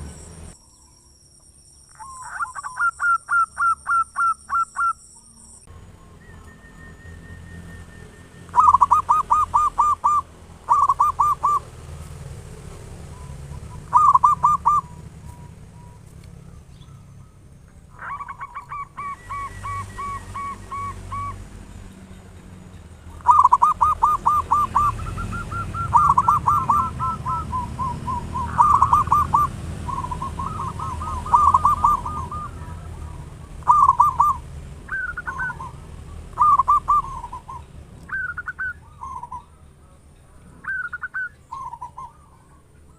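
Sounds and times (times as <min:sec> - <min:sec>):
doves cooing: 0:02.0 - 0:05.0, 0:08.5 - 0:17.2, 0:17.8 - 0:21.8, 0:23.1 - 0:40.0.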